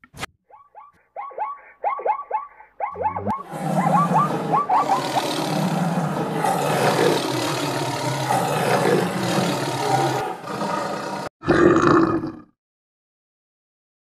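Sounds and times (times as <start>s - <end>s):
tiger growling and roaring: 3.0s - 12.5s.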